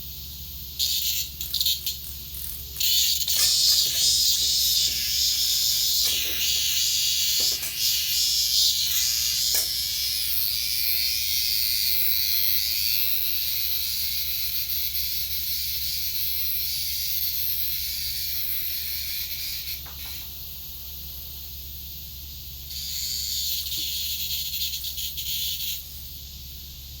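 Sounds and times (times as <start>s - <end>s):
cicada buzzing: 0.0s - 27.0s.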